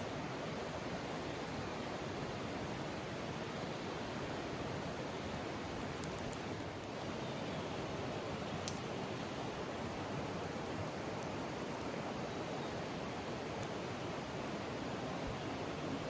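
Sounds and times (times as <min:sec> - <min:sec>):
faint high ticks: 0:08.6 - 0:09.4.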